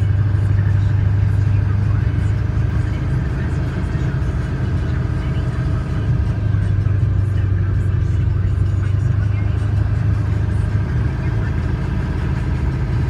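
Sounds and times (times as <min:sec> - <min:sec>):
road noise: 0:00.0 - 0:13.0
vehicle engine drone: 0:00.0 - 0:13.0.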